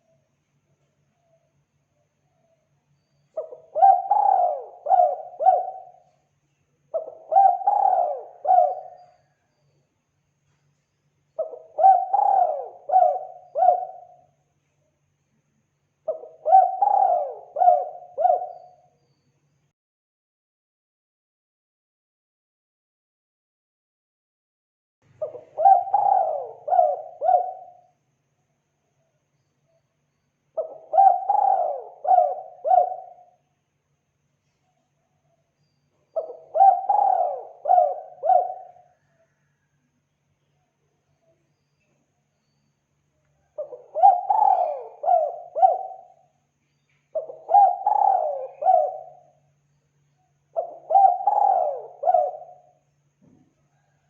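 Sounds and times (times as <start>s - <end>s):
dove cooing: 3.3s - 6.2s, 6.9s - 9.4s, 11.4s - 14.3s, 16.0s - 18.9s, 25.2s - 27.9s, 30.6s - 33.4s, 36.2s - 39.6s, 43.5s - 46.4s, 47.1s - 49.5s, 50.5s - 52.8s, 53.7s - 54.0s.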